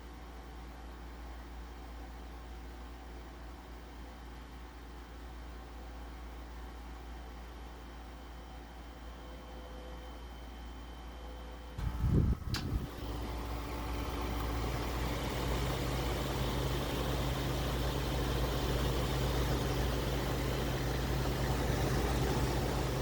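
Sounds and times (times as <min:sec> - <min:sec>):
air conditioner humming: 0:00.0 - 0:23.0
air conditioner switch click: 0:11.9 - 0:13.0.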